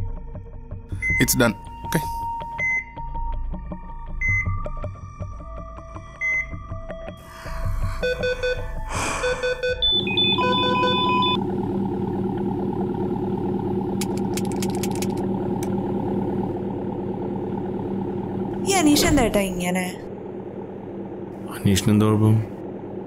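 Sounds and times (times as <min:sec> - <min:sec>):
car engine idling: 0:07.2 - 0:23.0
electronic beeps: 0:08.0 - 0:11.4.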